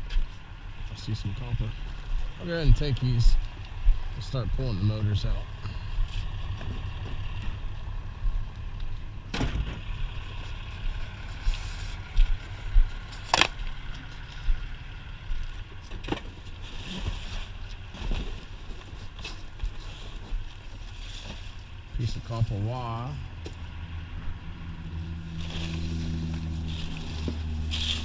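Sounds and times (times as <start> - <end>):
steady low rumble: 0.0 - 16.7.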